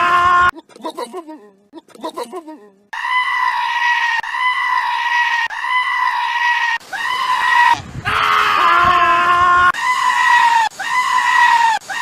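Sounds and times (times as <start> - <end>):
goat screaming: 3.0 - 12.0.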